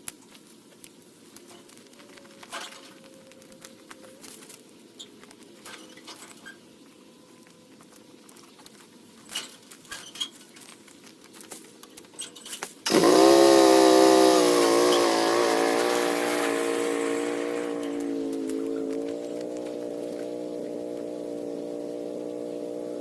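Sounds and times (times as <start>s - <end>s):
small petrol engine running: 12.8s - 23.0s.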